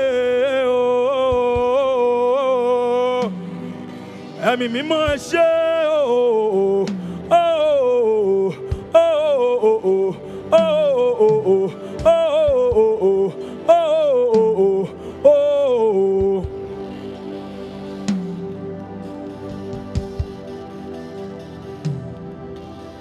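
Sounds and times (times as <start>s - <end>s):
person singing: 0.0s - 19.5s
held keyboard note: 15.9s - 23.0s.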